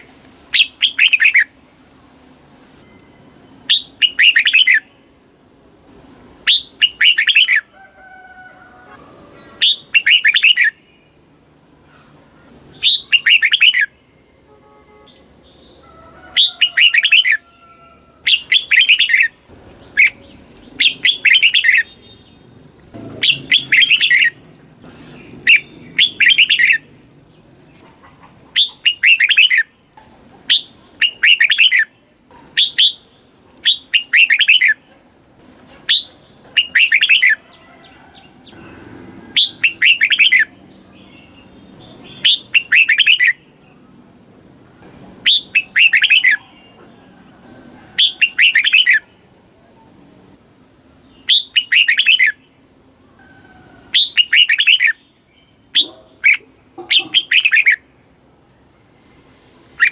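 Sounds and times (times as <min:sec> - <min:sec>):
bulbul singing: 0:02.8 - 0:05.1, 0:06.4 - 0:07.8, 0:09.4 - 0:14.3, 0:18.2 - 0:27.8, 0:28.6 - 0:29.8, 0:30.5 - 0:34.9, 0:35.9 - 0:37.5, 0:38.2 - 0:46.9, 0:48.0 - 0:49.2, 0:51.0 - 0:52.7, 0:53.9 - 0:57.9.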